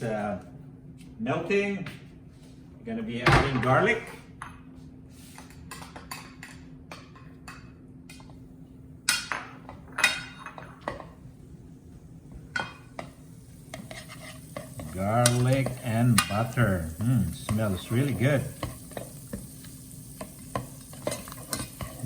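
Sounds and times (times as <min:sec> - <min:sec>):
dishes and utensils clinking: 0:09.1 - 0:11.2, 0:12.5 - 0:17.8, 0:20.2 - 0:22.0.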